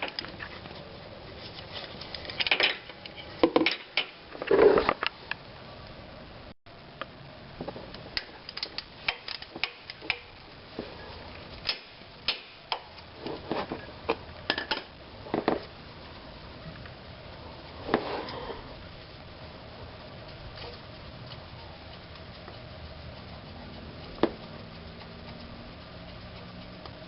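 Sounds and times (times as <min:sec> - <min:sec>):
tools and metal parts clinking: 0:02.1 - 0:04.1.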